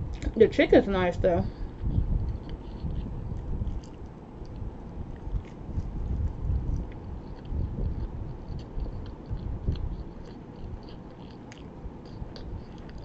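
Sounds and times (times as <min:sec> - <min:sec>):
person chewing food: 0:01.8 - 0:13.0
soft mouth thumps and clicks: 0:01.8 - 0:13.0.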